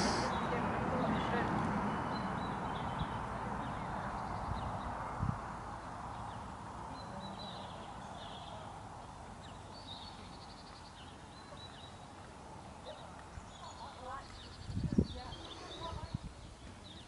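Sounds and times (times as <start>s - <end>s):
steady hiss: 0.0s - 0.3s
small birds chirping and trilling: 0.0s - 17.0s.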